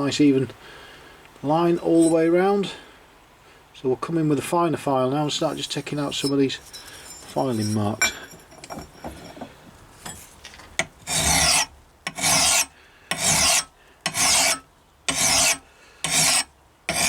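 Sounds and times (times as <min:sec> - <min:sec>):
metal file on steel: 0:01.9 - 0:02.2, 0:05.5 - 0:08.2, 0:10.8 - 0:17.0.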